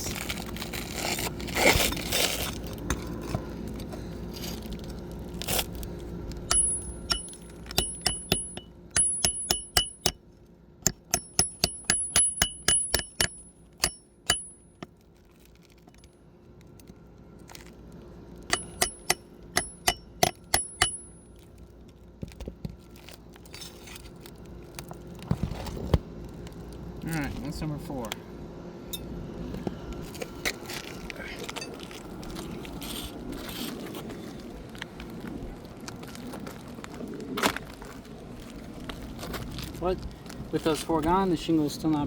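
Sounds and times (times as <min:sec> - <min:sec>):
hammer striking steel pry bar: 0:06.5 - 0:10.2, 0:10.8 - 0:14.9, 0:18.5 - 0:21.2.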